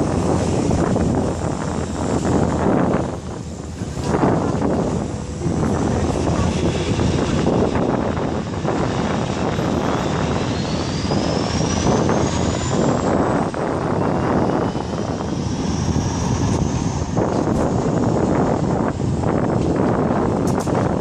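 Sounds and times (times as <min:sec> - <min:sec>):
jet engine whining: 0:00.0 - 0:21.0
wind buffeting microphone: 0:00.0 - 0:21.0.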